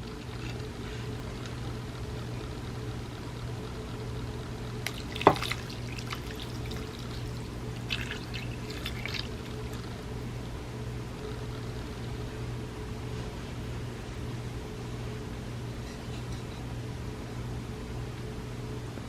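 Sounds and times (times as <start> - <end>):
steady low hum: 0.0 - 19.0
wet clicking liquid sounds: 4.8 - 10.0.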